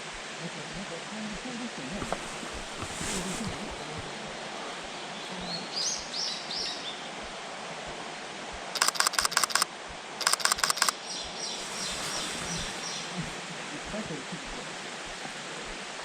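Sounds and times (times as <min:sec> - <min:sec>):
forest hiss: 0:00.0 - 0:16.0
rapid camera shutter clicks: 0:08.8 - 0:11.0.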